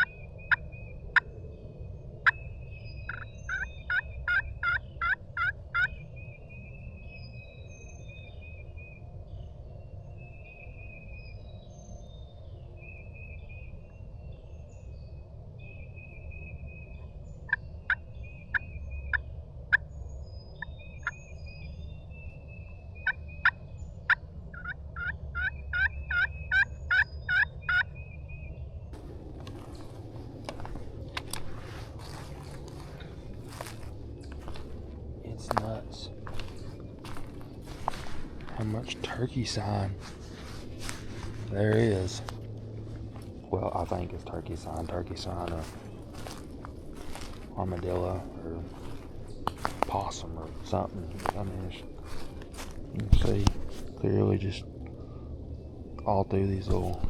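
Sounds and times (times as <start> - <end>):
bird trills and chirps: 0.0 - 28.8
birds calling: 0.0 - 57.0
steady low rumble: 0.0 - 57.0.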